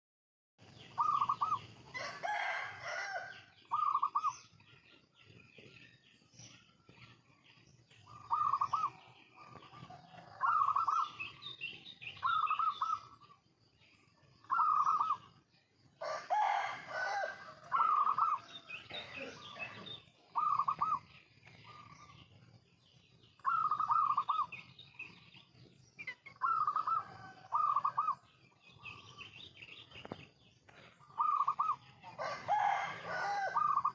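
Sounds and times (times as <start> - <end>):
rough bird calls: 0.6 - 33.9
dove cooing: 1.0 - 1.6, 2.2 - 4.3, 8.1 - 11.4, 14.5 - 15.3, 16.0 - 21.1, 23.4 - 24.5, 26.4 - 28.2, 31.0 - 33.9.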